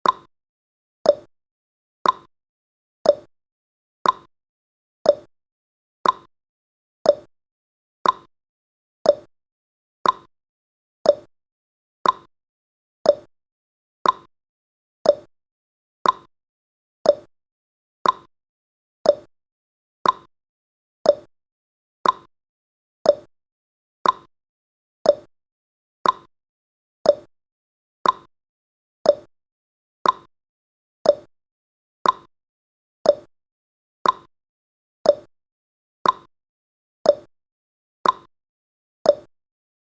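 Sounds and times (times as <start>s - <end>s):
clock tick-tock: 0.0s - 0.3s, 1.0s - 1.3s, 2.0s - 2.3s, 3.0s - 3.3s, 4.0s - 4.3s, 5.0s - 5.3s, 6.0s - 6.3s, 7.0s - 7.3s, 8.0s - 8.3s, 9.0s - 9.3s, 10.0s - 10.3s, 11.0s - 11.3s, 12.0s - 12.3s, 13.0s - 13.3s, 14.0s - 14.3s, 15.0s - 15.3s, 16.0s - 16.3s, 17.0s - 17.3s, 18.0s - 18.3s, 19.0s - 19.3s, 20.0s - 20.3s, 21.0s - 21.3s, 22.0s - 22.3s, 23.0s - 23.3s, 24.0s - 24.3s, 25.0s - 25.3s, 26.0s - 26.3s, 27.0s - 27.3s, 28.0s - 28.3s, 29.0s - 29.3s, 30.0s - 30.3s, 31.0s - 31.3s, 32.0s - 32.3s, 33.0s - 33.3s, 34.0s - 34.3s, 35.0s - 35.3s, 36.0s - 36.3s, 37.0s - 37.3s, 38.0s - 38.3s, 39.0s - 39.4s.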